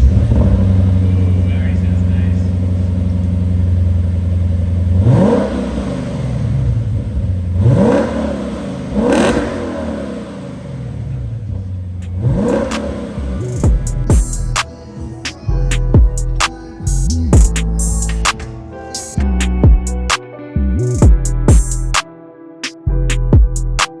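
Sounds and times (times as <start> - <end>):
car engine idling and revving: 0.0 - 18.4.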